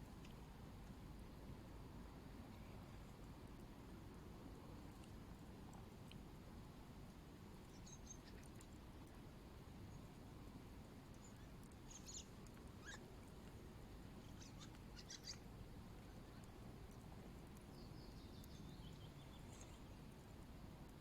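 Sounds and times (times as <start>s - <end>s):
faint bird chirps: 7.7s - 8.6s, 11.1s - 13.1s, 14.2s - 16.5s, 17.8s - 20.1s.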